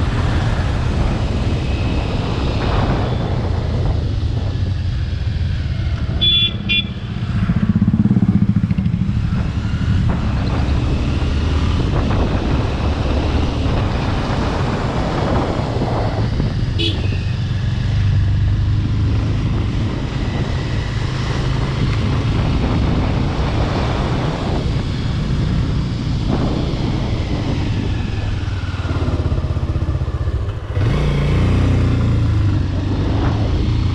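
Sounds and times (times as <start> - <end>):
motorcycle engine rumble: 0.0 - 33.9
vehicle horn toots: 6.1 - 7.1, 16.8 - 17.3.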